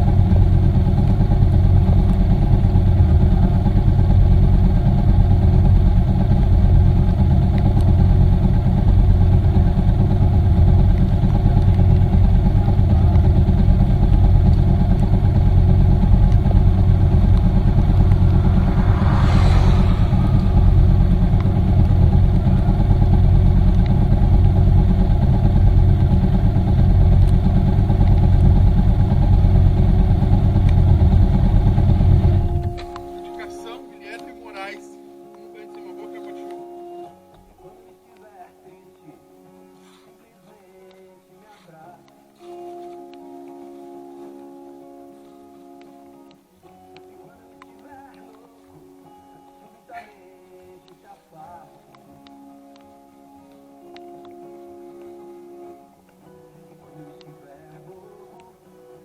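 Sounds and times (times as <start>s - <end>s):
motorcycle engine droning: 0.0s - 33.3s
road and wind noise: 0.0s - 33.3s.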